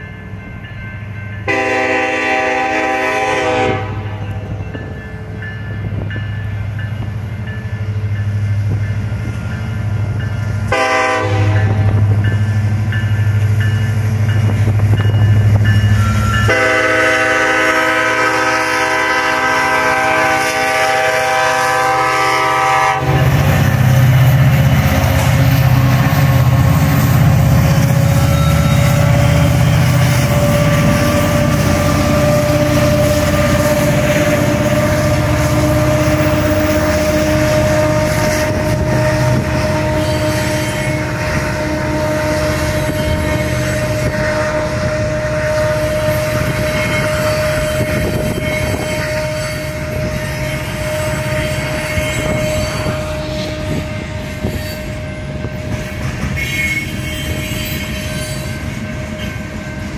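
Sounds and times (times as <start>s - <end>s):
diesel locomotives rumbling: 0.0s - 59.9s
train cars rolling: 0.0s - 59.9s
high wheel squeal: 26.7s - 41.1s, 45.6s - 59.8s.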